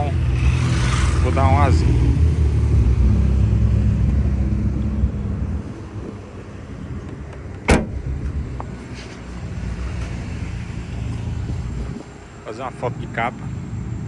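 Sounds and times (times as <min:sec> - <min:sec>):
low vehicle rumble: 0:00.0 - 0:14.0
sharp loud thump: 0:07.6 - 0:08.3.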